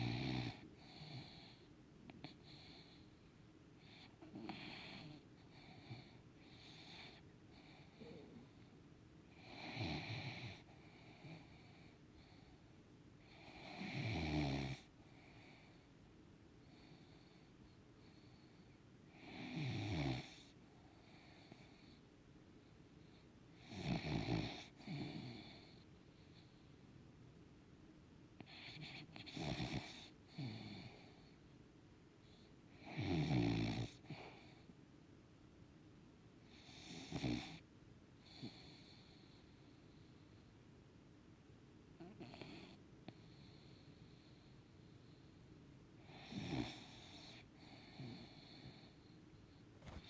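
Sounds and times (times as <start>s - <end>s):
dog snoring: 0.0s - 3.0s, 3.8s - 8.7s, 9.3s - 12.5s, 13.2s - 15.8s, 16.6s - 22.0s, 23.6s - 25.8s, 28.4s - 31.4s, 32.2s - 34.6s, 36.5s - 37.6s, 38.2s - 40.0s, 42.0s - 45.2s, 46.0s - 49.2s, 49.8s - 50.0s
soft wheezy breaths: 0.0s - 14.0s, 14.6s - 26.9s, 28.4s - 31.6s, 32.2s - 34.8s, 36.4s - 40.7s, 42.0s - 50.0s.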